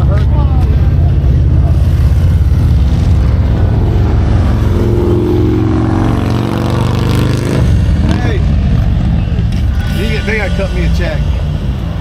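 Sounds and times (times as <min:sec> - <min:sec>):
second engine rising in pitch: 0:01.4 - 0:09.5.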